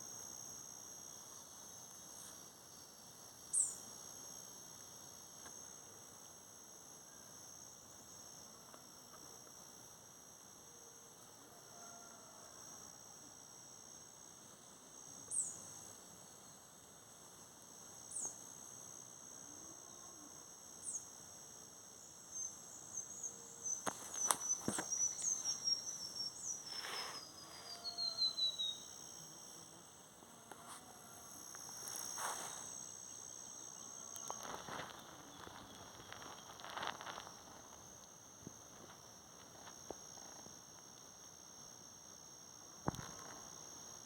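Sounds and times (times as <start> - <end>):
insects chirring: 0.0 - 44.0
bird whistles: 26.8 - 28.8.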